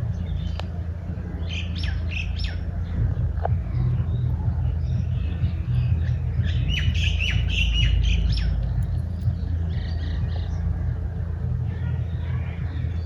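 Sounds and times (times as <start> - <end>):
steady low rumble: 0.0 - 13.0
birds squawking calls: 4.0 - 10.7.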